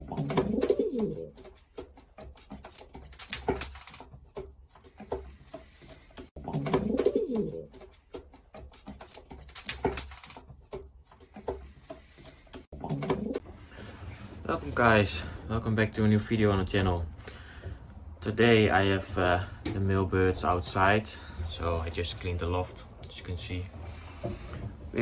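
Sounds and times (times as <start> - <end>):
pigeons cooing: 0.0 - 1.9, 6.4 - 7.9, 12.8 - 13.5.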